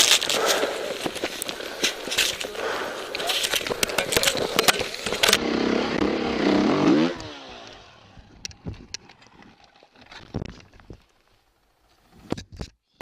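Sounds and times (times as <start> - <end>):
dirt bike engine revving: 2.5 - 8.3.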